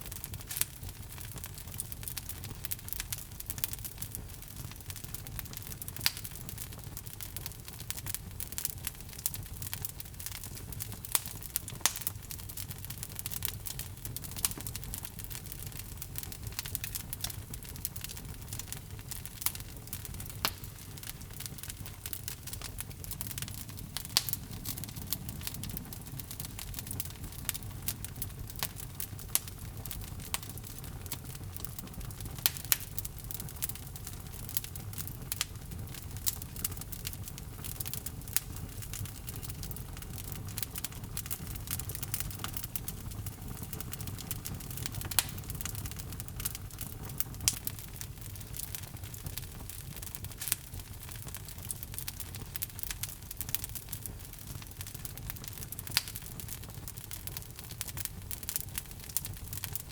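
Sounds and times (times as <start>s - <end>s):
log fire crackling: 0.0s - 59.9s
low rumble of burning: 0.0s - 59.9s
sharp pops and snaps: 23.5s - 25.2s.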